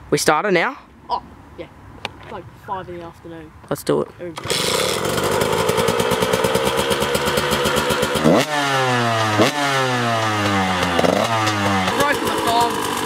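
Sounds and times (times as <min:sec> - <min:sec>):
dirt bike engine revving: 0:04.4 - 0:13.0.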